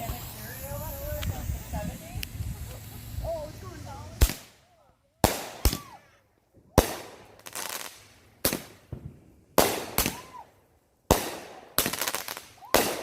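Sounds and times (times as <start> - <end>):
firework bangs: 0.0 - 13.0
firework crackling: 0.0 - 13.0.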